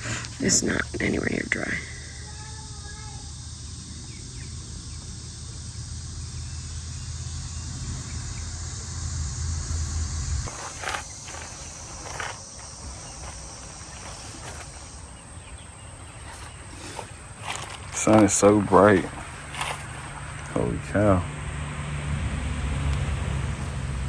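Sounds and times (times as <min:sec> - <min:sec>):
insects chirring: 0:00.0 - 0:24.0
low rumble: 0:03.5 - 0:14.8.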